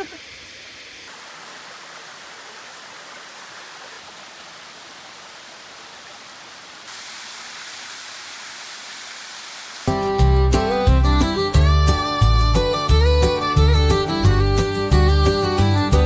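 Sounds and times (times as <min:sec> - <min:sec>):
small waterfall rushing: 0:00.0 - 0:10.0.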